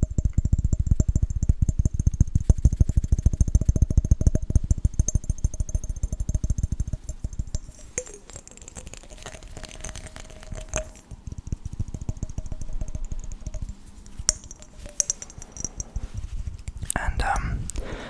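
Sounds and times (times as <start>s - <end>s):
fingertips tapping on glass jar: 0.0s - 18.0s
glass jar clinking: 5.0s - 11.1s, 12.1s - 17.6s.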